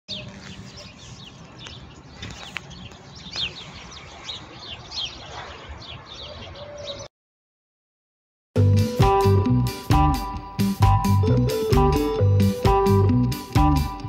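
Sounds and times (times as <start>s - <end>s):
birds chirping: 0.1s - 7.1s.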